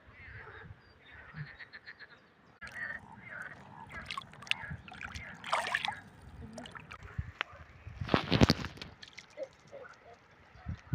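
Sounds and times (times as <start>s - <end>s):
water splashing and sloshing: 2.6s - 7.4s, 8.0s - 10.0s.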